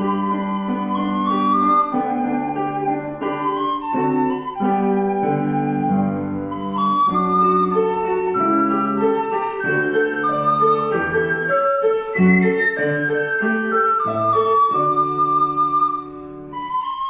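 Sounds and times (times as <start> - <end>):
flute melody: 0.0 - 17.0
piano accompaniment: 0.0 - 17.0
flute player breath: 10.9 - 13.9, 14.7 - 17.0.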